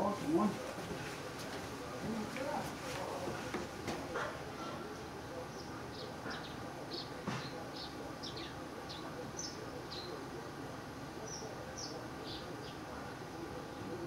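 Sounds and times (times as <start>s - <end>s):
outdoor background noise: 0.0s - 14.0s
small birds chirping: 4.8s - 14.0s.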